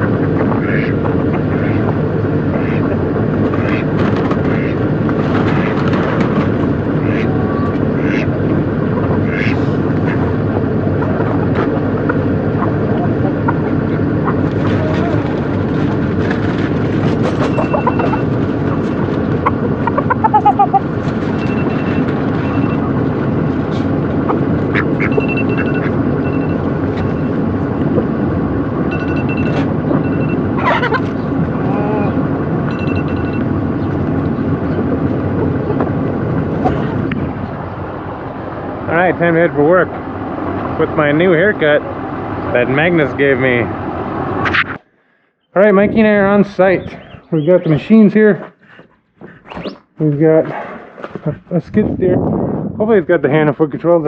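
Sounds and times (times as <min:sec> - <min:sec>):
vehicle engine rumble: 0:00.0 - 0:54.0
short high beeps: 0:25.1 - 0:27.3, 0:28.9 - 0:30.4, 0:32.7 - 0:33.5.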